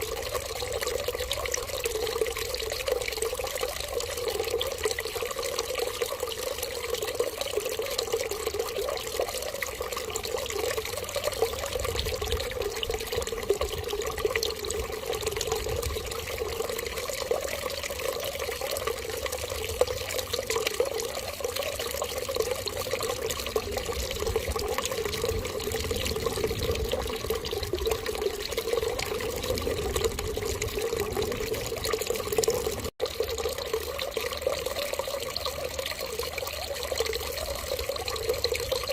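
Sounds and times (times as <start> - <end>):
water trickling: 0.0 - 38.9.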